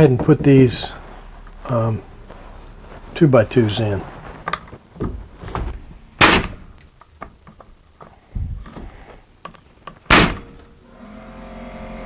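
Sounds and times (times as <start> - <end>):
loud wooden knocks: 5.0 - 7.7, 10.1 - 10.6.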